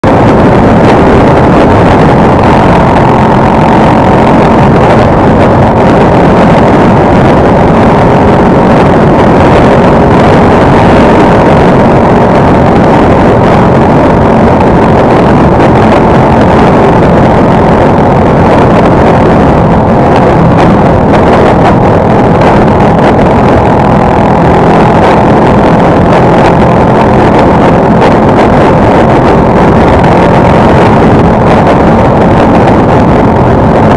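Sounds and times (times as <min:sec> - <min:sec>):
motorcycle engine running: 0:00.0 - 0:33.9
wind noise on microphone: 0:00.0 - 0:33.9.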